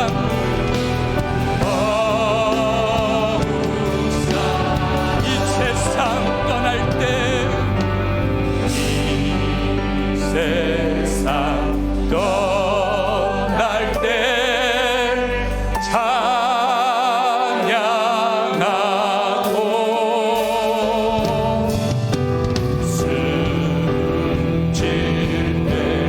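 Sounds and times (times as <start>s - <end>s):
bass: 0.0s - 16.5s, 20.4s - 26.0s
sustained keyboard chords: 0.0s - 16.7s
person singing with vibrato: 0.0s - 22.1s
praise band playing: 0.0s - 26.0s.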